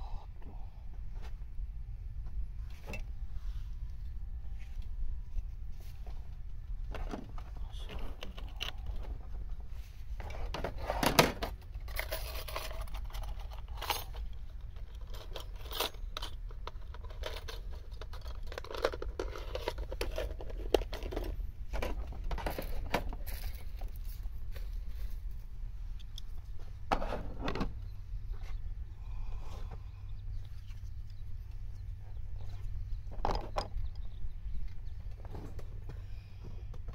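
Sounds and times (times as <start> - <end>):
steady low rumble: 0.0 - 36.9
handling noises rustling and crinkling: 2.6 - 28.6
small clicks and scrapes: 4.6 - 25.3.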